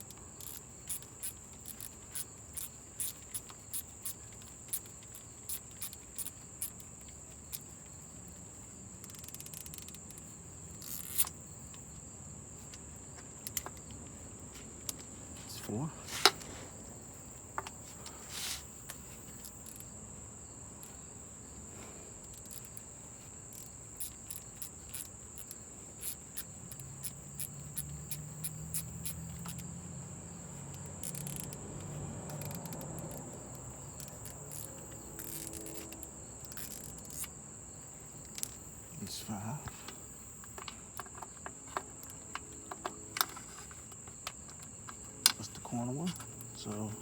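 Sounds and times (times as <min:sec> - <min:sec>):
ratchet clicks: 0:00.0 - 0:07.8, 0:09.0 - 0:11.4, 0:13.4 - 0:13.8, 0:22.2 - 0:22.8, 0:23.5 - 0:29.7, 0:30.6 - 0:37.3, 0:38.2 - 0:38.7
crickets chirping: 0:00.0 - 0:47.0.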